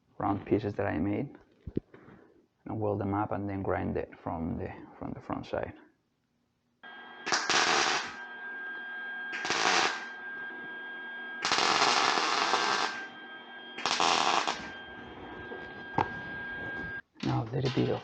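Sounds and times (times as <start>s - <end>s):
steady high tone: 6.8s - 18.0s
welding bursts: 7.2s - 8.2s, 9.3s - 10.2s, 11.4s - 13.1s, 13.8s - 15.3s.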